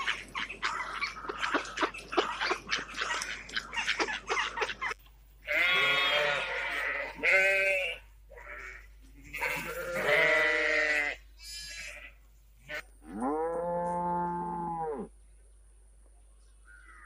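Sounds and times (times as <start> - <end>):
ducks quacking: 0.0 - 8.8
goat bleating: 5.4 - 14.7.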